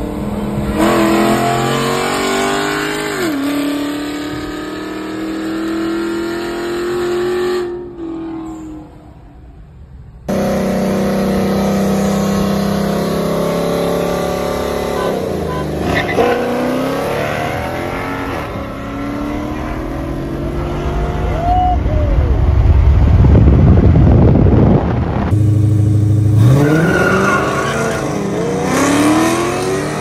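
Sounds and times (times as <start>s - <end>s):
car engine accelerating hard: 0.0s - 7.9s, 10.3s - 30.0s
steady engine drone: 10.3s - 30.0s.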